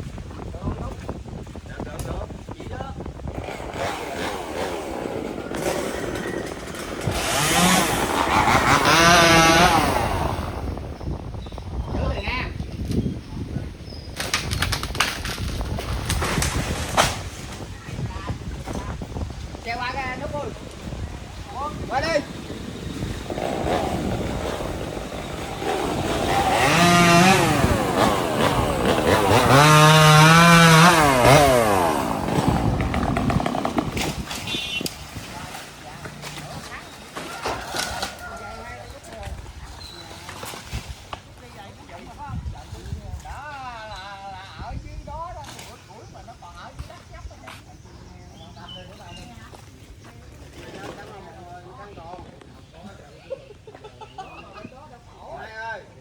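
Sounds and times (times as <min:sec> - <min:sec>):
chainsaw engine revving: 0:03.3 - 0:10.9, 0:20.7 - 0:38.2.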